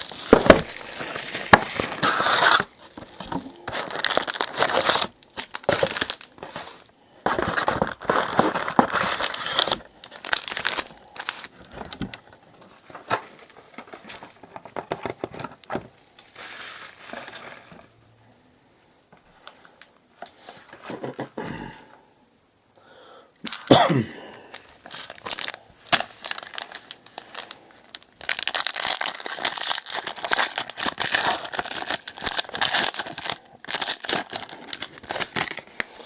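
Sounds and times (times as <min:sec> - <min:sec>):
sharp wrapper tear: 0:00.0 - 0:02.7, 0:03.6 - 0:06.4, 0:24.9 - 0:35.9
wrapper crinkling: 0:00.0 - 0:12.1, 0:12.8 - 0:18.0, 0:24.5 - 0:36.0.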